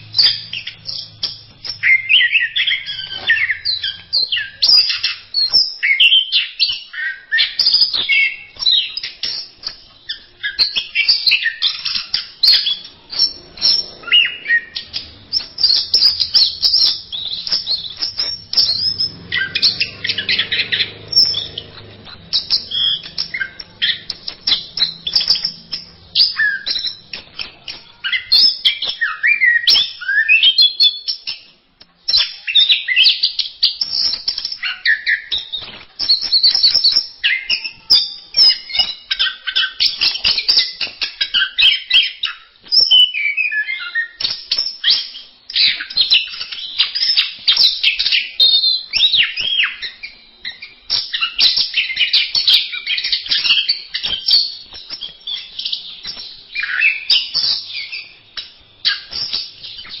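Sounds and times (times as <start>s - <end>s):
thrush singing: 10.2s - 28.5s.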